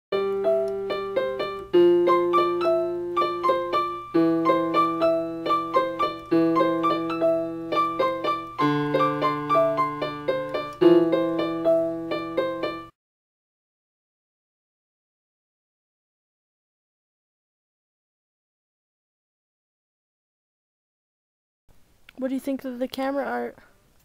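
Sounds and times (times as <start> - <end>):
solo piano music: 0.1 - 13.0.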